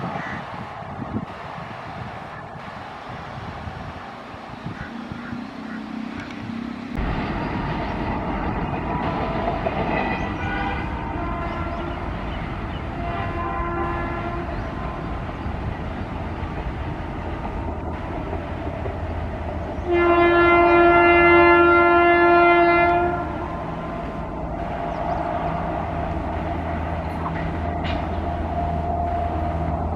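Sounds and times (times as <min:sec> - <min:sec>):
passing train rumble: 0:00.0 - 0:29.9
locomotive horn: 0:09.0 - 0:15.2, 0:19.8 - 0:23.6.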